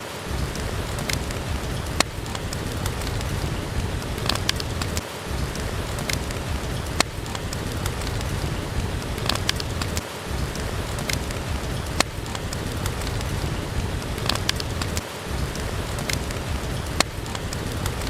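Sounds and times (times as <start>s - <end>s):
steady rain falling: 0.0s - 18.0s
wood fire crackling: 0.0s - 18.0s.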